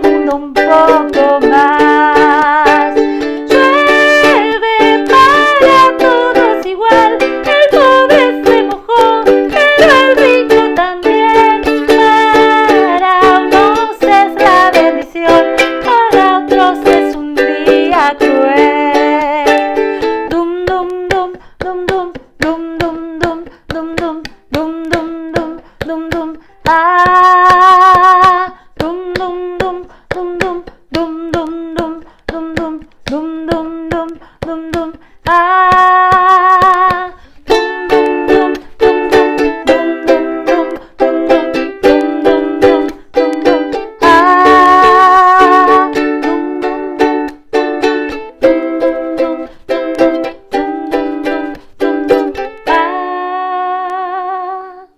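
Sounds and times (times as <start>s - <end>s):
strummed string instrument: 0.0s - 54.3s
person singing: 0.0s - 54.9s.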